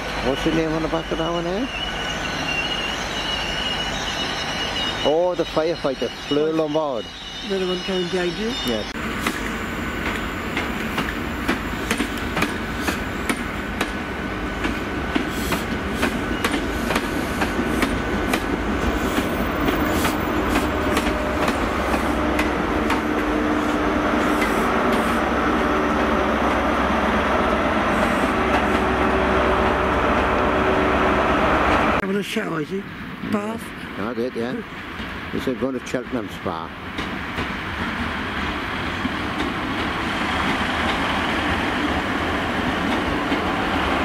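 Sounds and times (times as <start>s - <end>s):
train wheels clicking over rail joints: 8.7s - 23.3s, 24.2s - 25.2s, 36.8s - 44.0s.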